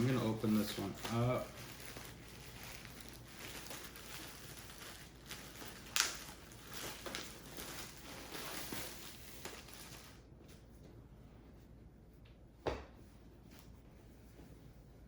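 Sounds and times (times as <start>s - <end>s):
packaging rustling: 0.0s - 10.2s.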